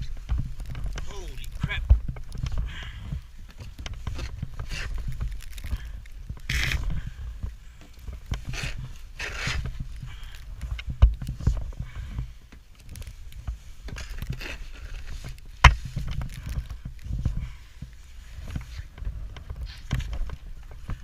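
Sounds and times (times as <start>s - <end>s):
shovel crunching and scraping snow: 3.9s - 7.2s, 8.2s - 10.5s, 13.0s - 20.4s.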